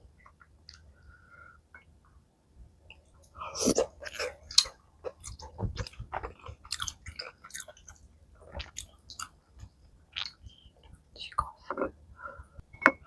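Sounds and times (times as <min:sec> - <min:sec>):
person chewing and biting: 0:03.6 - 0:09.3.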